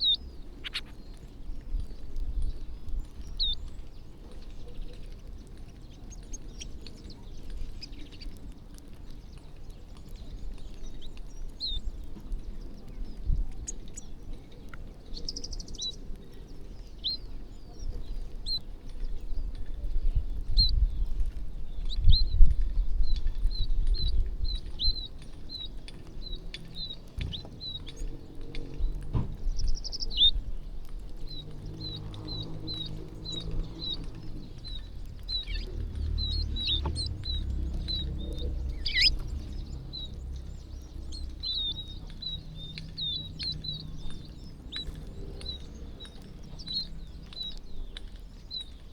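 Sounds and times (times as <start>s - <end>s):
small birds chirping: 0.0s - 48.9s
low rumble: 28.7s - 48.6s.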